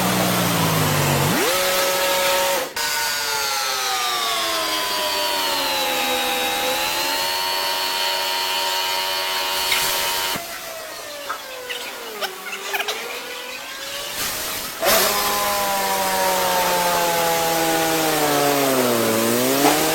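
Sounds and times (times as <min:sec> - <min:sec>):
car wash machinery motor whine: 0:00.0 - 0:02.8, 0:03.7 - 0:19.9.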